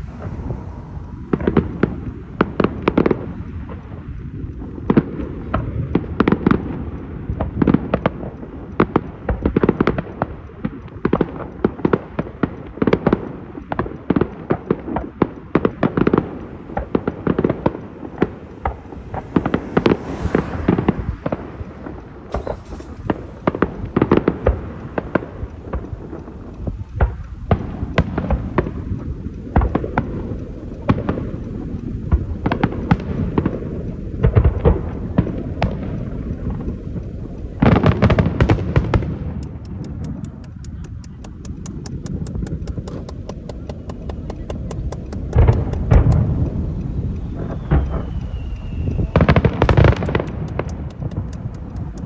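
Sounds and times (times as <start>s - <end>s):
booming rumble: 0.0s - 7.6s, 17.4s - 52.0s
fireworks bangs and crackles: 0.0s - 52.0s.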